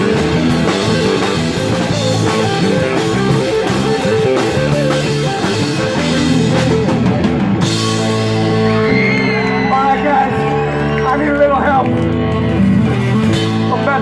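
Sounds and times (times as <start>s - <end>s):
drum kit beat: 0.0s - 10.8s
electric guitar: 0.0s - 14.0s.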